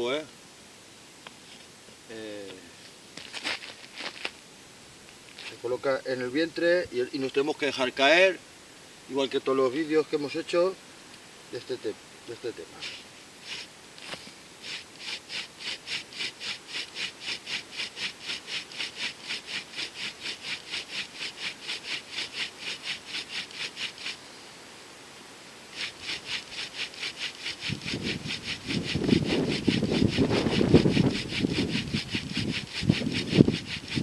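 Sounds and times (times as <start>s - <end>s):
wooden spindle grinding into wood: 12.8s - 24.2s, 25.7s - 34.0s.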